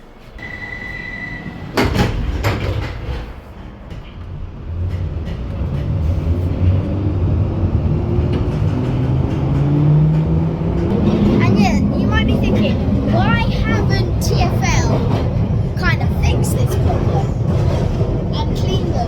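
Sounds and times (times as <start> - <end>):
train doors shutting: 0.0 - 19.0
train motors humming and whining: 0.0 - 19.0
door closing warning tone: 0.4 - 2.2.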